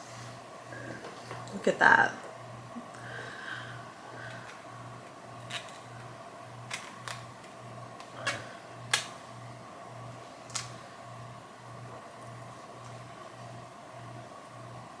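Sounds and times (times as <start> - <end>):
clicks and taps of packaging: 6.7 - 9.2.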